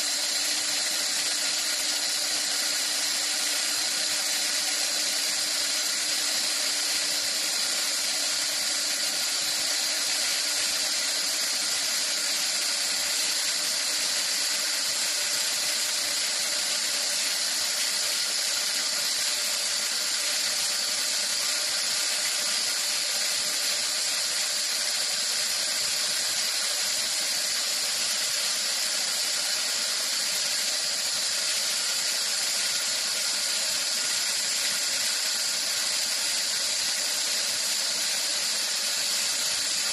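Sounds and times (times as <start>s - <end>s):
lathe running with hiss: 0.0s - 39.9s.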